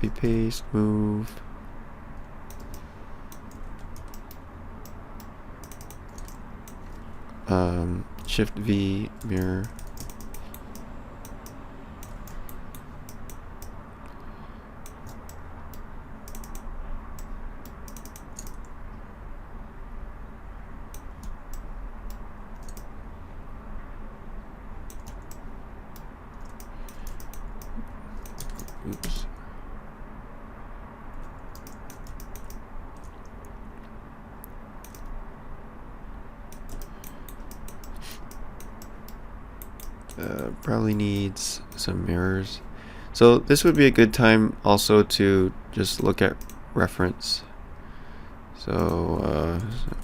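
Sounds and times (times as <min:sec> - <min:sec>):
low steady hum: 0:00.0 - 0:50.0
computer keyboard keys clicking: 0:02.5 - 0:07.0, 0:09.2 - 0:13.8, 0:14.8 - 0:18.7, 0:20.9 - 0:22.9, 0:24.9 - 0:29.2, 0:31.2 - 0:33.4, 0:34.8 - 0:35.1, 0:36.5 - 0:41.3.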